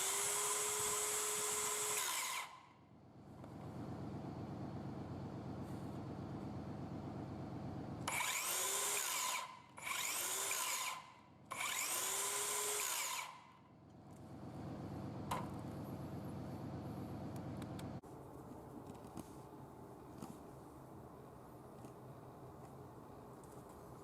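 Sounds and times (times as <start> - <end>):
circular saw whining: 0.0 - 2.7, 8.1 - 13.5.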